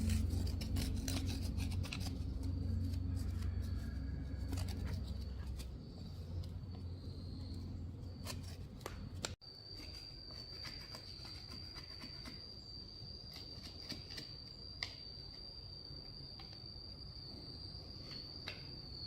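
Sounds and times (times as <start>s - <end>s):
insect trilling: 0.0s - 8.6s
low hum: 0.0s - 9.4s.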